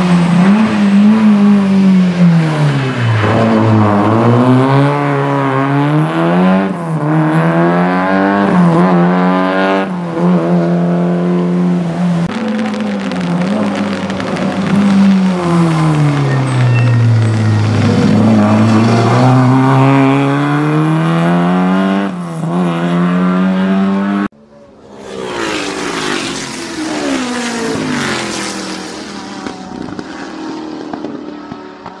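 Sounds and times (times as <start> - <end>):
car engine accelerating hard: 0.0 - 24.3.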